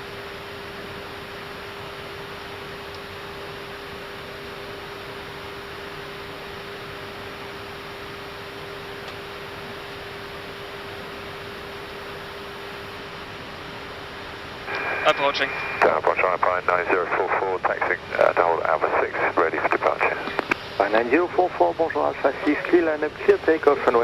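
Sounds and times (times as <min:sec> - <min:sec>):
constant hum tone: 0:00.0 - 0:24.0
airflow rushing in cockpit: 0:14.7 - 0:24.0.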